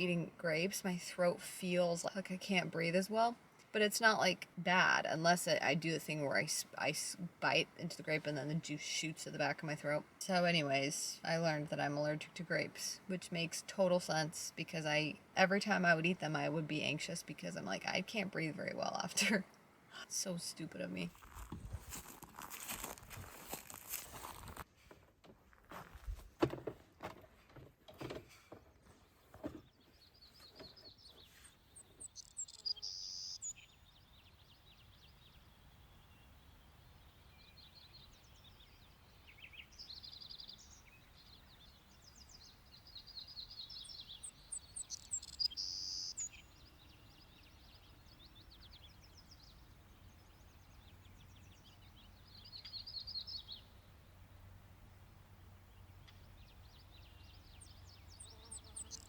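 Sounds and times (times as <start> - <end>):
songbirds singing trilled phrases: 29.8 - 59.0.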